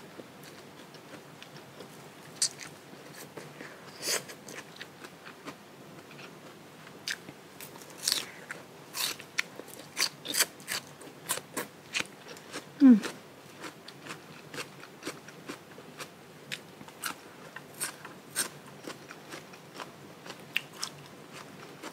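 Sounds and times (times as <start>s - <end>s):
crunchy bites and chewing: 7.0s - 12.6s.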